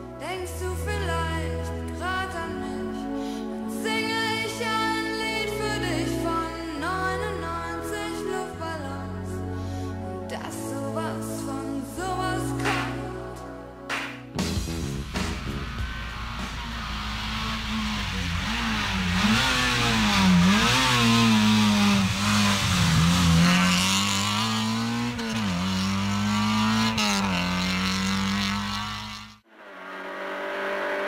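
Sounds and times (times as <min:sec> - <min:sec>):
rally car engine revving: 0:14.4 - 0:31.0.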